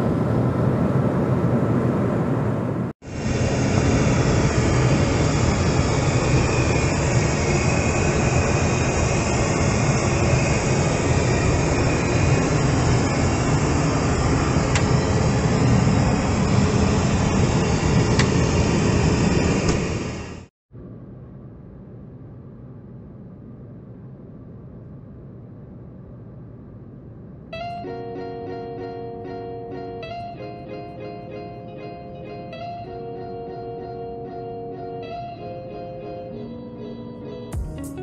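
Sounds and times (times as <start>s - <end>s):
airliner cabin rumble: 0.0s - 27.6s.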